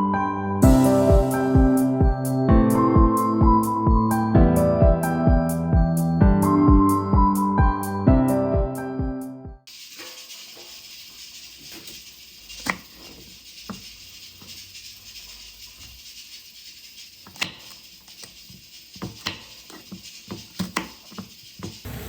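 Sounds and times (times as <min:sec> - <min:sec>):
steady hiss: 0:09.7 - 0:22.0.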